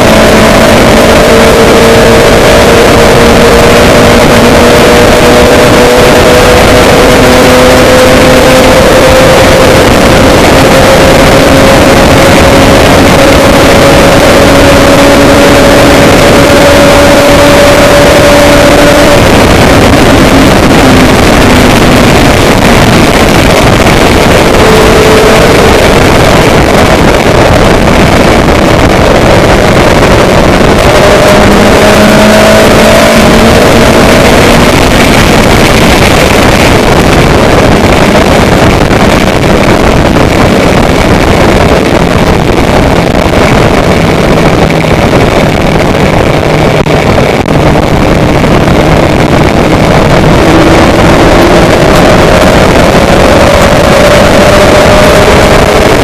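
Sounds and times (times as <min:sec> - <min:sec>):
faint pitch-shifting hum: 0:00.0 - 0:56.0
moving vehicle noise: 0:00.0 - 0:56.0.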